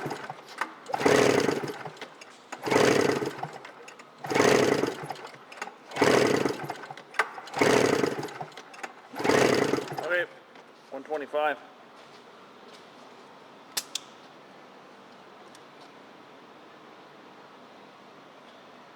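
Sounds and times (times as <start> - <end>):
engine being cranked over: 0.0 - 10.3.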